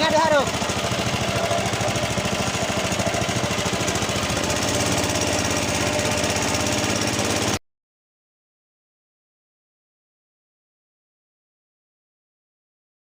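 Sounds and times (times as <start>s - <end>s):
boat engine running hard: 0.0s - 7.6s.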